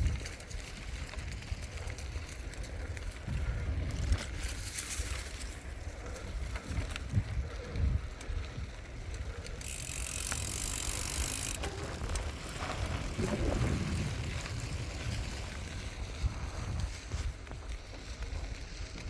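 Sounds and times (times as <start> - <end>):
wind buffeting microphone: 0.0 - 19.0
tyres rumbling on road: 9.9 - 16.8.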